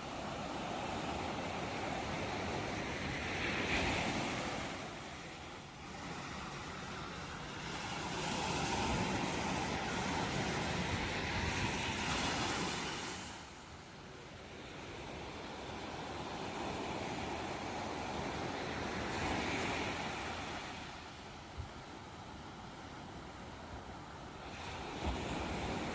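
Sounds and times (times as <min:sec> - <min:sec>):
ocean waves breaking: 0:00.0 - 0:13.6, 0:22.0 - 0:25.9.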